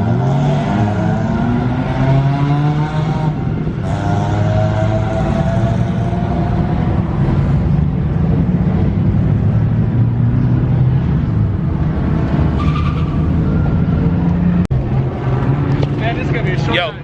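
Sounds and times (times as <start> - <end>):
car engines droning: 0.0 - 17.0.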